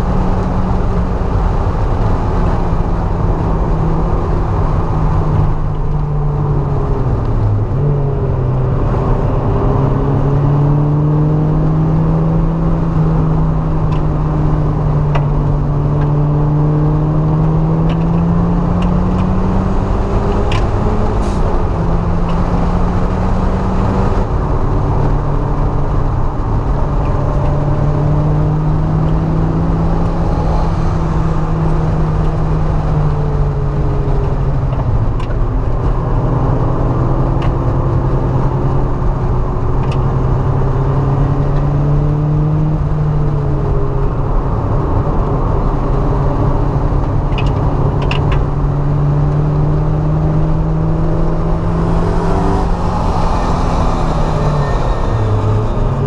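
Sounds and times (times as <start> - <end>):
car engine revving: 0.0 - 56.0
road and wind noise: 0.0 - 56.0.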